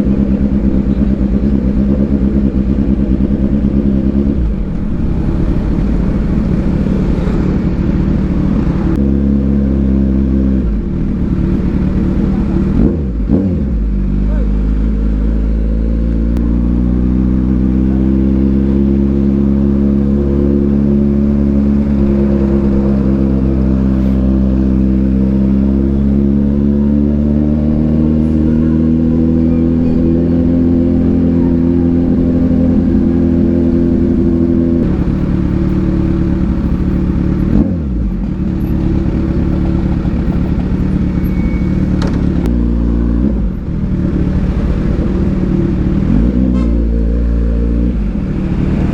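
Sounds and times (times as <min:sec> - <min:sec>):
motorcycle engine pulling under load: 0:34.8 - 0:42.5.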